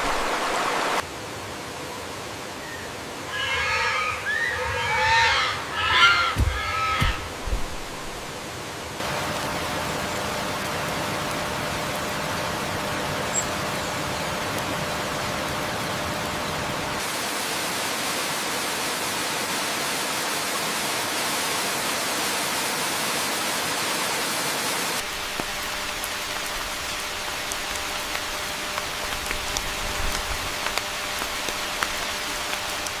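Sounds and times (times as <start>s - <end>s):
steady rain falling: 0.0s - 3.2s, 6.4s - 33.0s
raindrops ticking: 25.0s - 33.0s.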